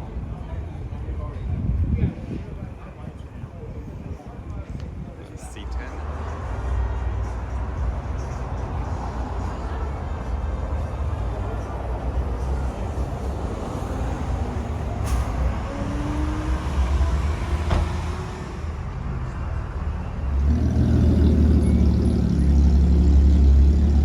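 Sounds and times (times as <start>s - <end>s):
car engine rumbling: 6.5s - 24.0s.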